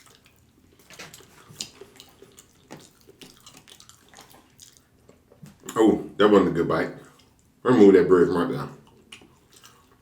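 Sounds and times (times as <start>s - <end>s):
wet chewing: 0.0s - 5.8s, 7.0s - 7.6s, 8.8s - 10.0s.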